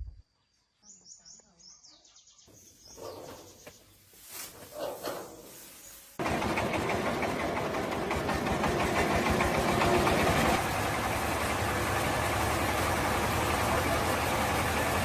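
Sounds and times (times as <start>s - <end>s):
diesel engine knocking: 6.2s - 15.0s.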